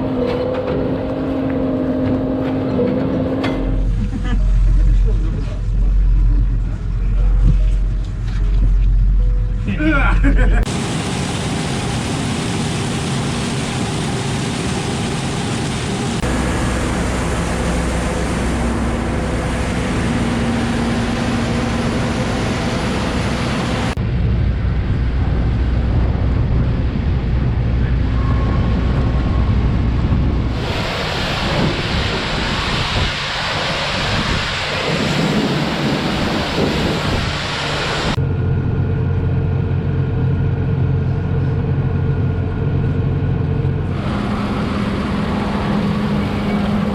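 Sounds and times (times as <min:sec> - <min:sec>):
farm machinery engine hum: 0:00.0 - 0:46.9
loud rush of noise: 0:10.6 - 0:40.7, 0:43.2 - 0:46.9.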